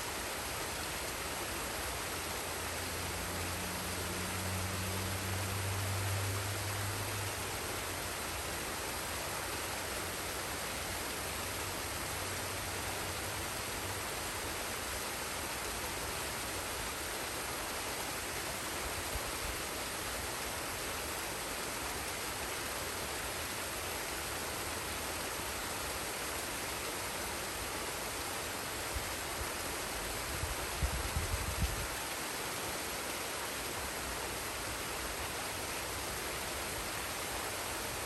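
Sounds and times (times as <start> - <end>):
waterfall and stream rushing: 0.0 - 38.0.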